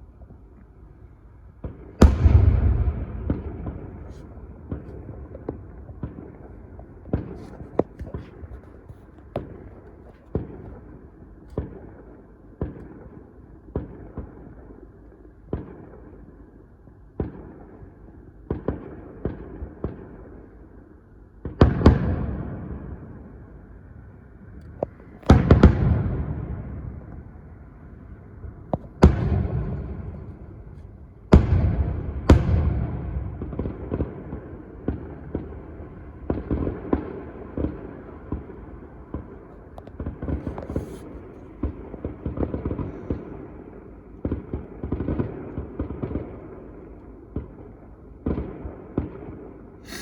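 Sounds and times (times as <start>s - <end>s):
fireworks bangs: 1.6s - 8.6s, 24.9s - 27.4s, 28.8s - 39.4s.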